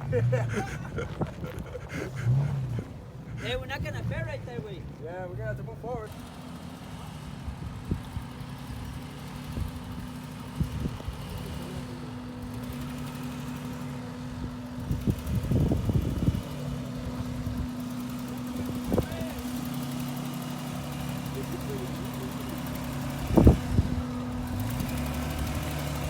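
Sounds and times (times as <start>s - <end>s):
truck engine running at low revs: 0.0s - 26.0s.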